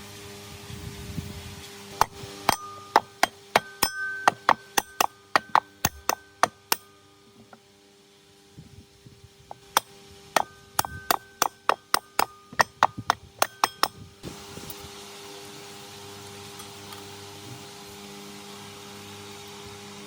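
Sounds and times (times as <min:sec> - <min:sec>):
steady machine hum: 0:01.9 - 0:07.6, 0:09.5 - 0:14.8
light hammer taps: 0:02.0 - 0:06.8
hammer striking ringing metal: 0:02.0 - 0:07.0, 0:09.5 - 0:14.1.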